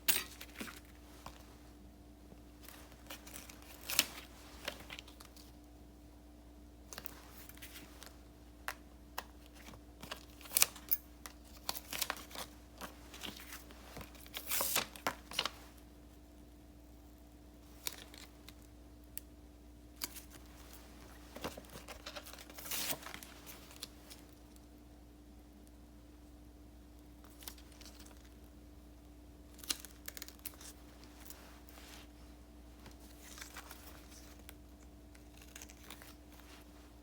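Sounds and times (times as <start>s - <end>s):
paper rustling: 9.4s - 15.8s.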